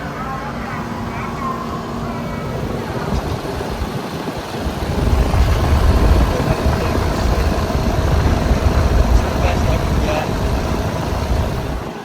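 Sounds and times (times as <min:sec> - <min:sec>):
air conditioner unit running: 0:00.0 - 0:12.0
low rumble: 0:04.6 - 0:11.9.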